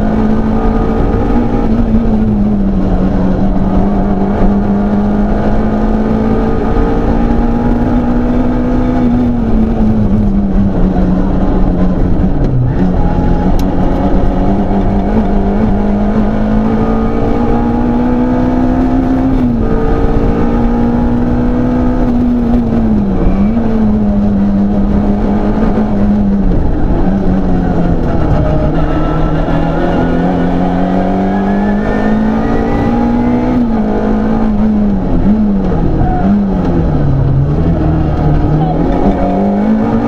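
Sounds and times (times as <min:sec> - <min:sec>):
car engine at high revs: 0:00.0 - 0:40.0
road and tyre noise: 0:00.0 - 0:40.0.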